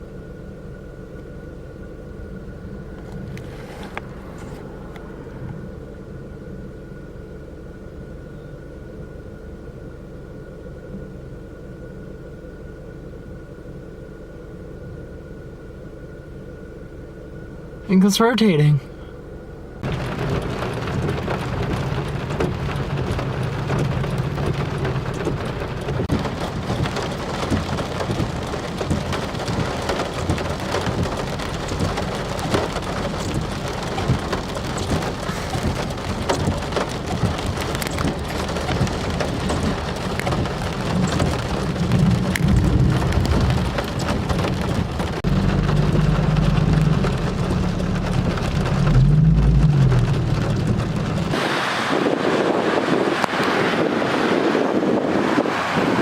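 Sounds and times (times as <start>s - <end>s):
low thunder rumble: 19.7s - 56.0s
heavy rain pouring: 19.8s - 56.0s.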